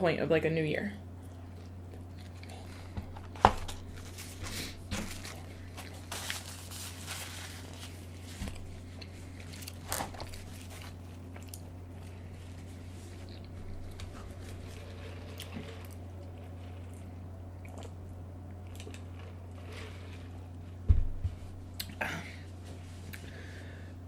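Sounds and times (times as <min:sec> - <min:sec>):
low steady hum: 0:00.0 - 0:24.0
chewing and biting clicks: 0:11.3 - 0:11.7, 0:18.6 - 0:19.4.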